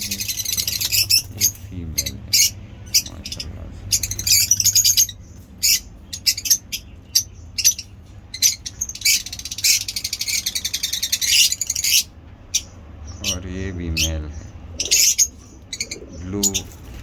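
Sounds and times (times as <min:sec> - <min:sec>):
lovebirds chirping: 0:00.0 - 0:17.0.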